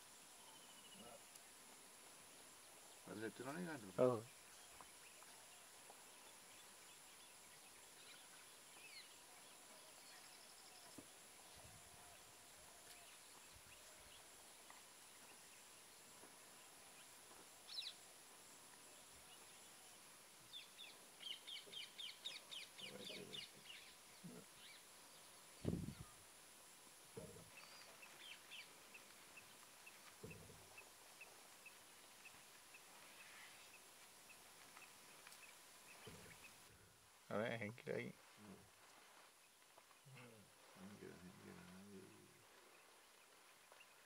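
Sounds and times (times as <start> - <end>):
wild bird calls: 19.3 - 24.9, 27.2 - 36.7.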